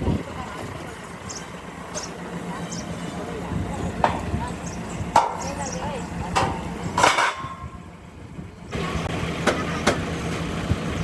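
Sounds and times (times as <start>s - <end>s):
hammer striking metal: 5.1s - 7.7s.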